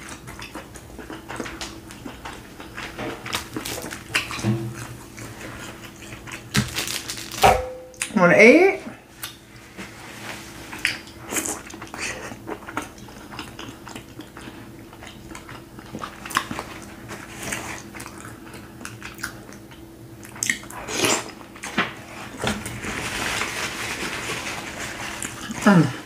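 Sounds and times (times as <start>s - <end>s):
chewing and wet mouth clicks: 10.8s - 16.6s, 18.0s - 20.7s
paper napkin rustling: 22.0s - 25.7s.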